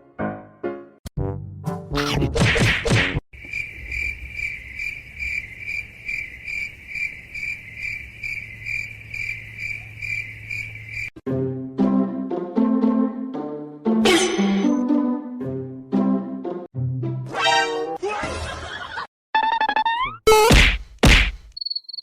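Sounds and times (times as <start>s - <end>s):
music: 0.0s - 3.2s, 11.2s - 18.0s
cricket chirping: 3.4s - 11.2s, 21.5s - 22.0s.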